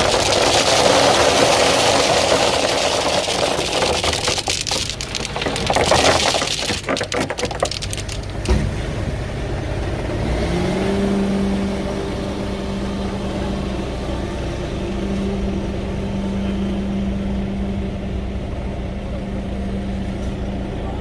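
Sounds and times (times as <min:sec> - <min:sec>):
earthmoving machine engine revving: 0:10.1 - 0:12.4.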